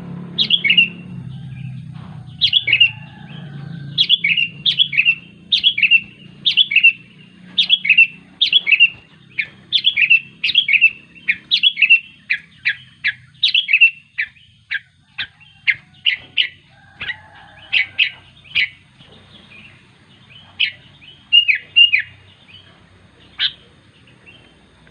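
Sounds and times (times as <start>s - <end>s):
bulbul chirping: 0.4s - 1.0s, 2.3s - 24.4s.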